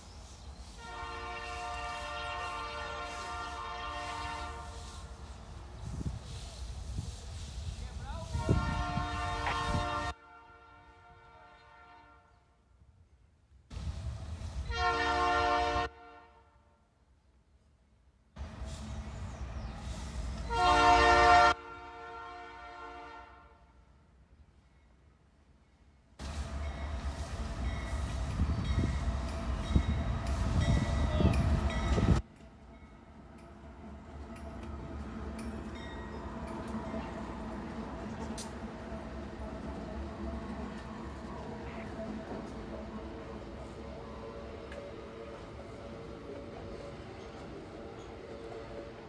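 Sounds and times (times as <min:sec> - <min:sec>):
locomotive air horn: 0:00.8 - 0:05.2, 0:08.2 - 0:12.3, 0:14.6 - 0:16.6, 0:20.4 - 0:23.7
locomotive rumble: 0:26.2 - 0:32.2, 0:33.2 - 0:49.0.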